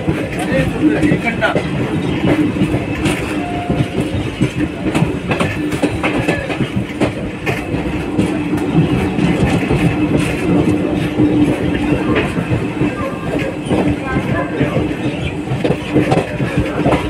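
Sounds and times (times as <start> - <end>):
train rumbling at speed: 0.0 - 17.0
wheels clacking over rail joints: 0.0 - 17.0.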